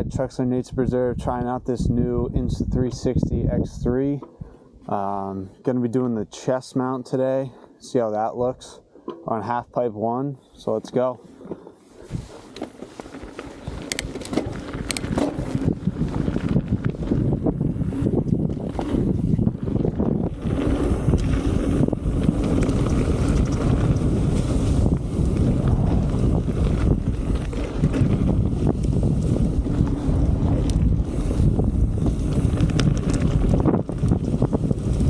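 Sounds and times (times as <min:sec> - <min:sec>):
wind buffeting microphone: 0:00.0 - 0:05.2, 0:11.9 - 0:12.6, 0:13.5 - 0:35.0
bike rattles and clicks: 0:11.3 - 0:35.0
low rumble: 0:15.4 - 0:35.0.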